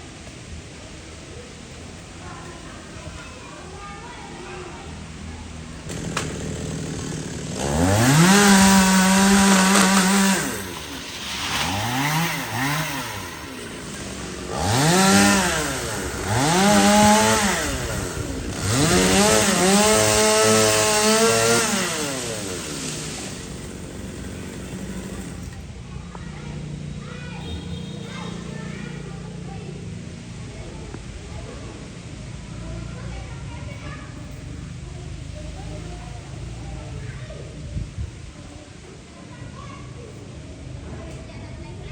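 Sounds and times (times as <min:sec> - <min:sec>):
chainsaw revving: 0:05.6 - 0:25.9.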